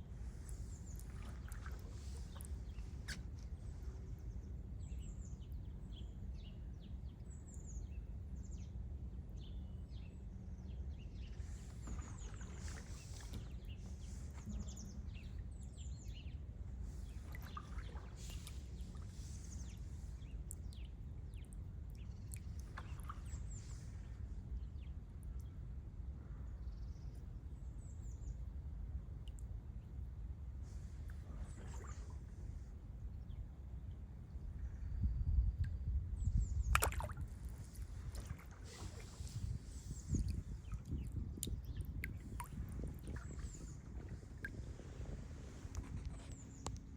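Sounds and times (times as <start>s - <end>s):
rustles or splashes: 0.2s - 3.7s, 11.4s - 14.8s, 16.9s - 20.7s, 36.7s - 46.6s
steady low rumble: 10.8s - 46.9s.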